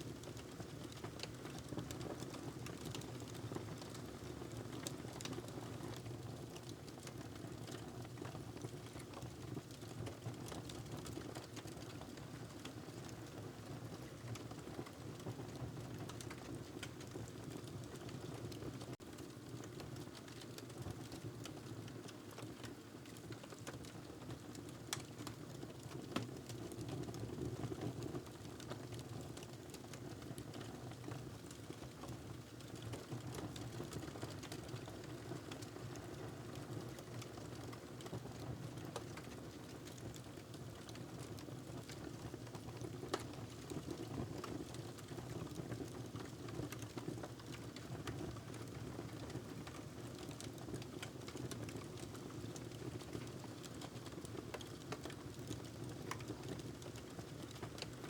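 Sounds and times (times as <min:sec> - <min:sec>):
wood fire crackling: 0:29.4 - 0:38.2, 0:41.8 - 0:58.0.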